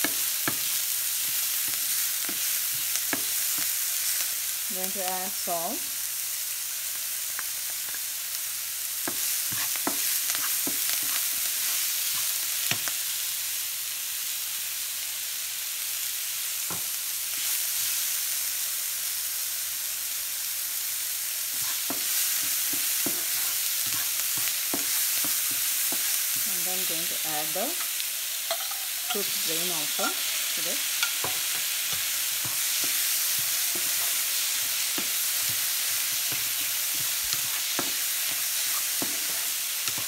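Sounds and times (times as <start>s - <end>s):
vegetables sizzling in oil: 0.0s - 40.0s
spatula scraping and tapping pan: 9.1s - 12.9s, 21.6s - 26.6s, 28.5s - 29.4s, 30.9s - 40.0s.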